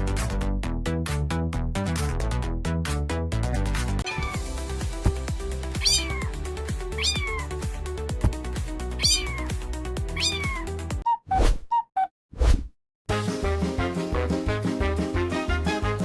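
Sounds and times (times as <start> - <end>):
cat meowing: 4.0 - 4.6, 5.8 - 6.4, 7.0 - 7.6, 9.0 - 9.5, 10.2 - 10.8
upbeat background music: 13.1 - 16.0.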